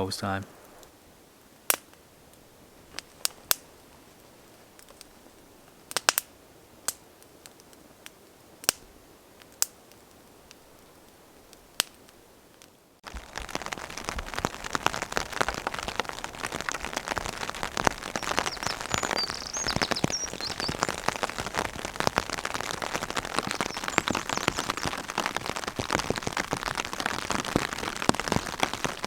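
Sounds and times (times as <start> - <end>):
heavy rain on a tarp: 0.0 - 29.0.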